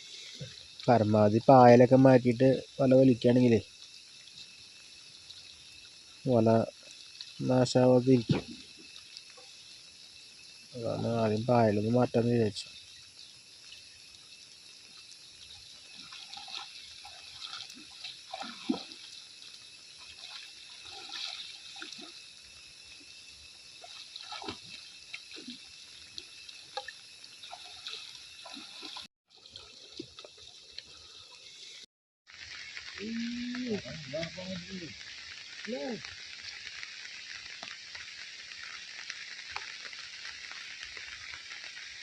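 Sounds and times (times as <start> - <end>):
steady high hiss: 0.0 - 28.9, 31.0 - 42.0
pond water splashing and dripping: 0.0 - 42.0.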